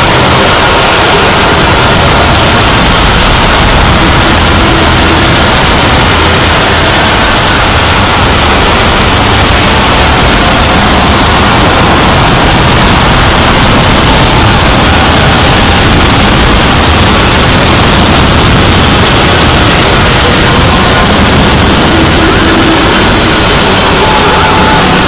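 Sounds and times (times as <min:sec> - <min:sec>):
harsh distorted static noise: 0:00.0 - 0:25.0.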